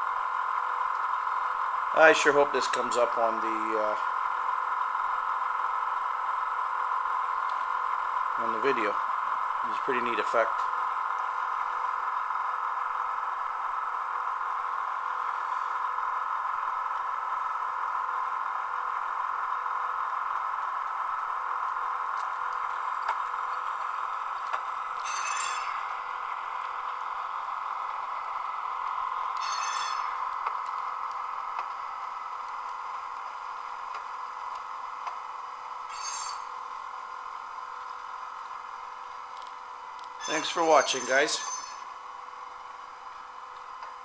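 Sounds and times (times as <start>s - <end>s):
steady whine from small speaker: 0.0s - 44.0s
metallic bursts: 25.0s - 26.3s, 29.3s - 30.5s, 35.9s - 36.6s, 40.2s - 42.0s.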